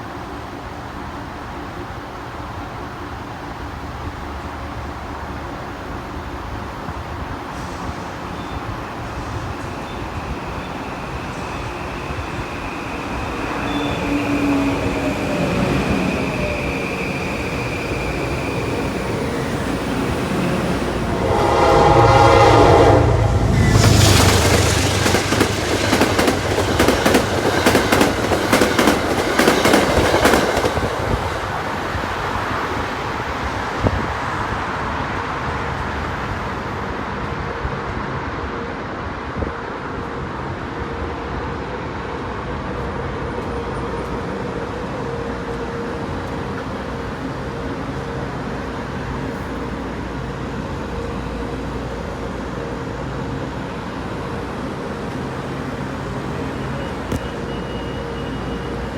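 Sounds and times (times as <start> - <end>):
train rumbling: 0.0 - 58.9
train wheels clattering over rails: 23.5 - 32.4.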